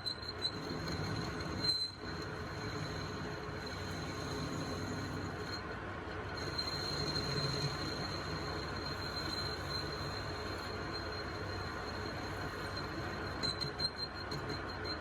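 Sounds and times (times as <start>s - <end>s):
thin high whine: 6.4s - 15.0s.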